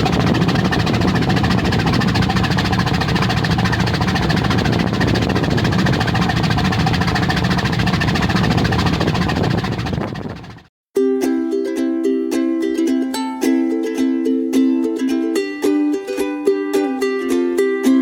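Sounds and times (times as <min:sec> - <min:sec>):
ship diesel engine droning: 0:00.0 - 0:10.7
wash of water noise: 0:00.0 - 0:10.7.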